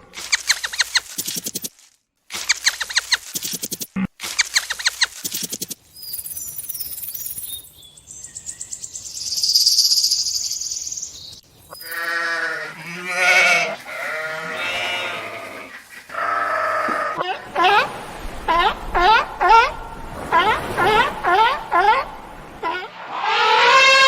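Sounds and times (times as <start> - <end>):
goat bleating: 11.8 - 17.2.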